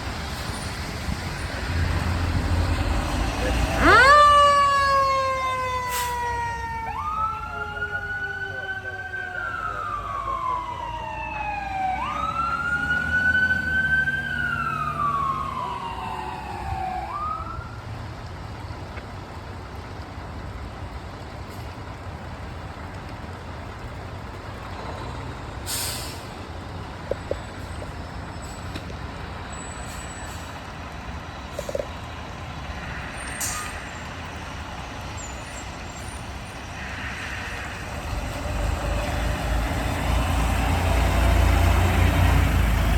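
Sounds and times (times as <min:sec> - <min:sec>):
emergency vehicle siren wailing: 0:00.0 - 0:18.0, 0:29.4 - 0:42.9
traffic and engine rumble: 0:00.0 - 0:42.9.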